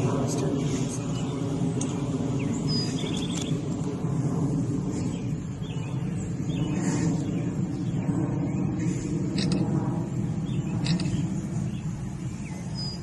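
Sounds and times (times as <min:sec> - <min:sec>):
low outdoor rumble: 0:00.0 - 0:13.0
bird chirps: 0:01.0 - 0:03.6, 0:10.4 - 0:13.0.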